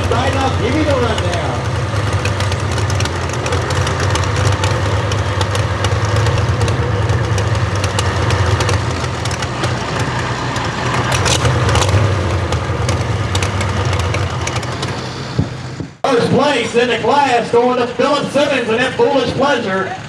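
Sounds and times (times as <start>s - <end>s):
sharp ticks: 0.0s - 15.5s
truck engine idling: 0.0s - 16.0s.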